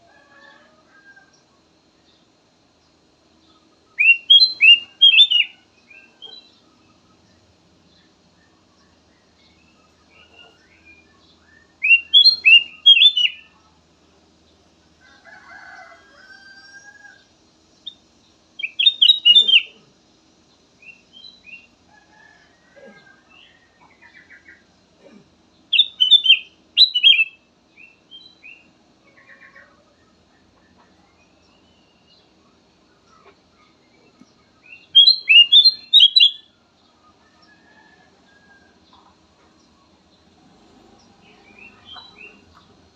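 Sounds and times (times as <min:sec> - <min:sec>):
bulbul whistled song: 0:03.9 - 0:06.5, 0:10.3 - 0:13.6, 0:18.6 - 0:19.8, 0:25.7 - 0:28.6, 0:34.6 - 0:36.5
soft bird chirps: 0:18.6 - 0:19.9, 0:22.9 - 0:39.9.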